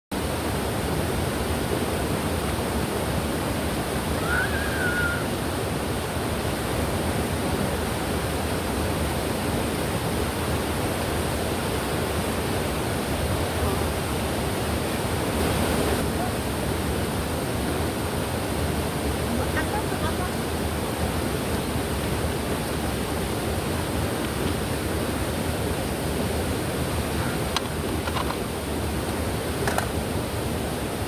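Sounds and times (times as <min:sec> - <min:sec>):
stream rushing over rocks: 0:00.2 - 0:31.0.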